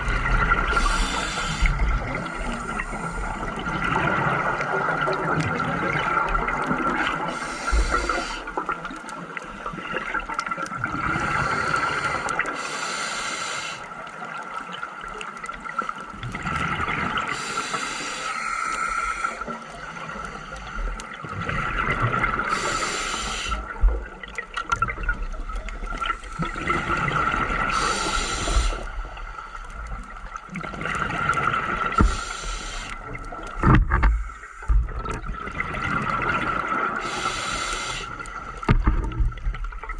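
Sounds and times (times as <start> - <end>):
diver inhaling through regulator: 0.6 - 3.5, 7.3 - 8.6, 11.2 - 13.9, 17.3 - 20.9, 22.5 - 23.8, 26.0 - 29.9, 31.9 - 33.0, 37.0 - 38.7.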